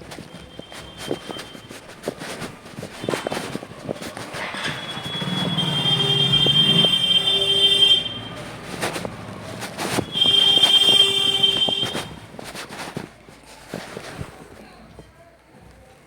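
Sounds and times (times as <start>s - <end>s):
high-pitched whistling tone: 3.0s - 8.4s, 10.0s - 12.2s.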